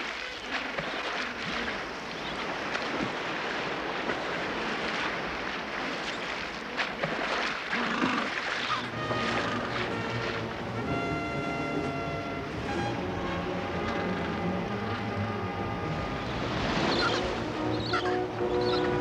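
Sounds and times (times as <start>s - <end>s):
music: 8.9s - 19.0s.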